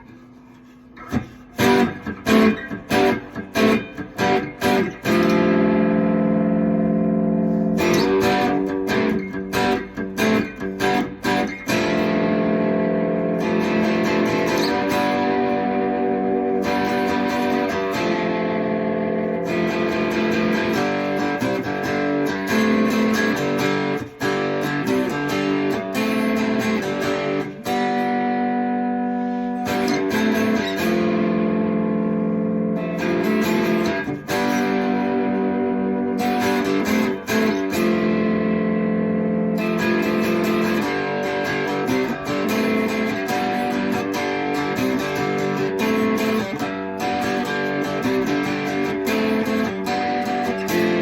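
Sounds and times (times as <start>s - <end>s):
guitar strummed chords: 0.0s - 51.0s.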